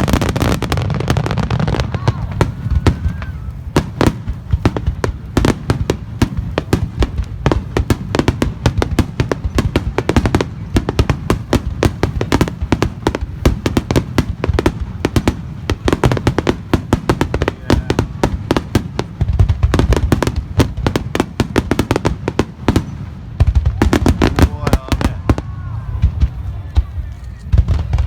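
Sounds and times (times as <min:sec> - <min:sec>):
fireworks banging and crackling: 0:00.0 - 0:28.0.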